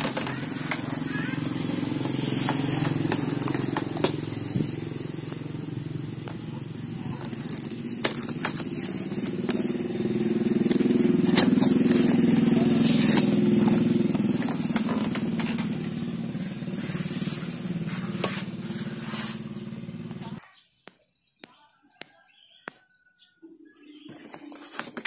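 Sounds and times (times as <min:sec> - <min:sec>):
motorcycle engine running: 0:00.0 - 0:20.4
rustling: 0:06.1 - 0:20.1.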